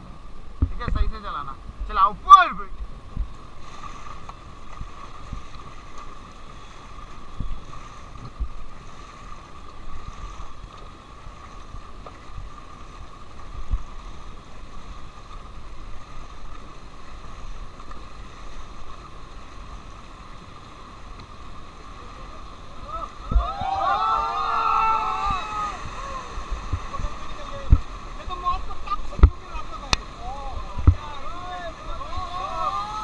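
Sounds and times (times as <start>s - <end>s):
rushing river water: 0.0s - 33.0s
low thumps: 30.6s - 31.1s.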